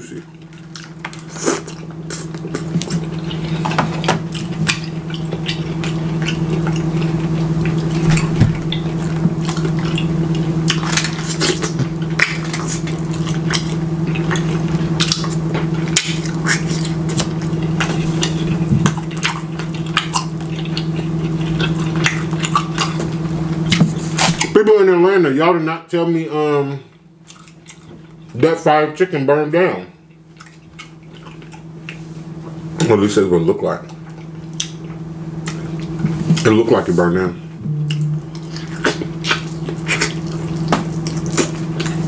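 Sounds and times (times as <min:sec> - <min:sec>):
low hum: 0:00.0 - 0:42.0
wet chewing and smacking: 0:00.2 - 0:24.6, 0:26.9 - 0:28.4, 0:30.0 - 0:32.6, 0:33.8 - 0:36.6, 0:37.9 - 0:42.0.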